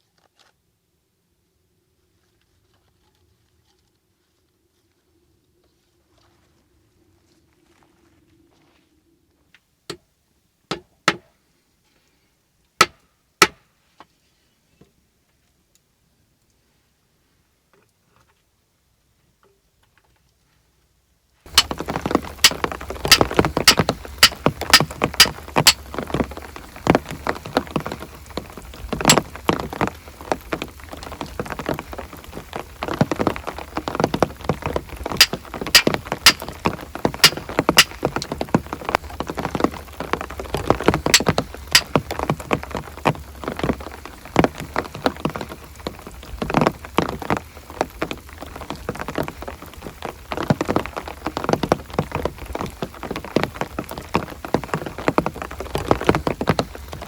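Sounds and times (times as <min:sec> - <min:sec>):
loud raindrops striking a surface: 0:21.5 - 0:57.0
rain falling: 0:21.5 - 0:57.0.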